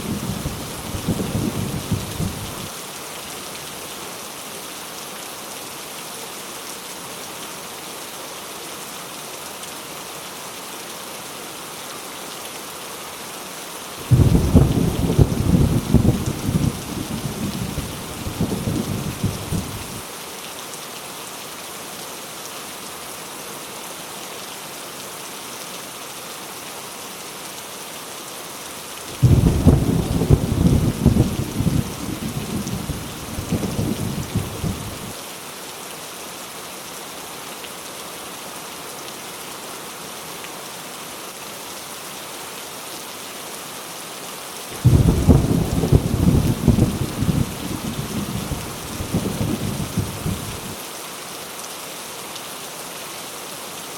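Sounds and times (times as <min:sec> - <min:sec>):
heavy rain falling: 0:00.0 - 0:53.9
rolling thunder: 0:14.1 - 0:17.8, 0:29.2 - 0:35.0, 0:44.8 - 0:50.8.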